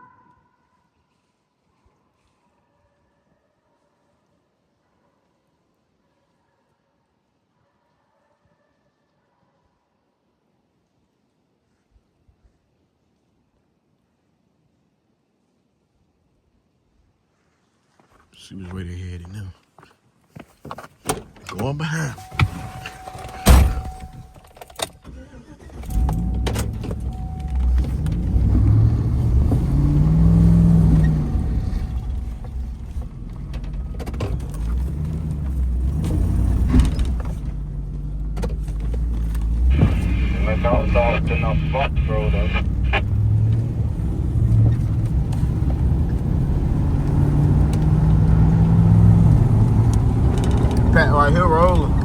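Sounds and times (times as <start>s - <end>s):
road noise: 21.1s - 52.0s
vehicle engine accelerating: 25.9s - 52.0s.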